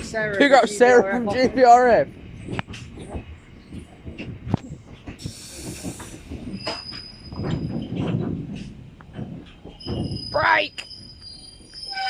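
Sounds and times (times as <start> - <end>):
low train rumble: 0.0 - 12.0
hiss burst: 5.2 - 6.3
train wheel squeal: 5.2 - 8.2, 9.6 - 12.0.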